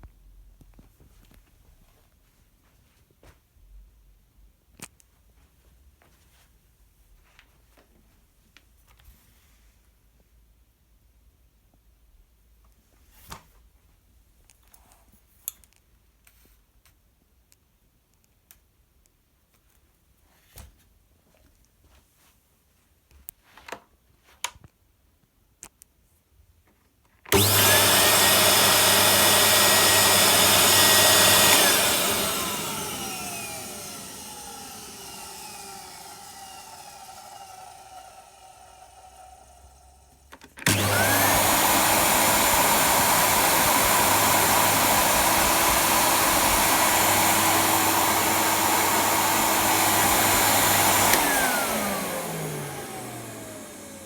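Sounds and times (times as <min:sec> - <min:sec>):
vacuum cleaner motor running: 0:27.3 - 0:54.0.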